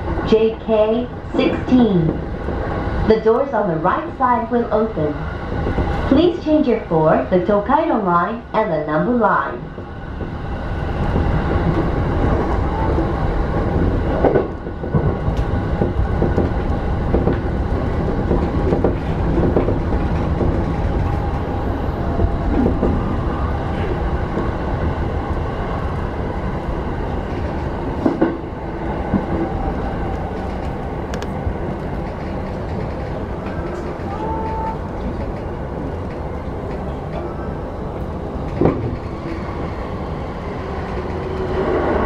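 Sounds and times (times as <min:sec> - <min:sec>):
train wheels rumbling on rail: 0:00.0 - 0:42.0
track knocks: 0:11.0 - 0:23.1, 0:38.4 - 0:39.5.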